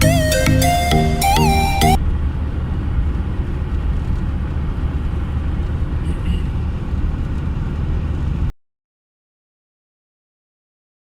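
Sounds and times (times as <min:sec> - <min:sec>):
low rumble of moving vehicle: 0:00.7 - 0:08.5.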